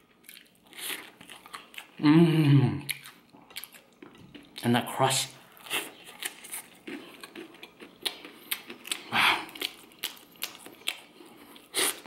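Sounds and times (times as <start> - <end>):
crunchy bread chewing: 0.0 - 2.0, 5.5 - 12.0.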